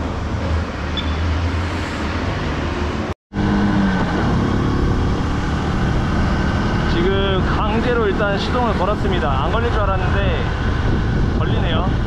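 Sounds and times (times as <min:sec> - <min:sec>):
traffic noise: 0:00.0 - 0:12.0
wind rushing: 0:01.4 - 0:12.0.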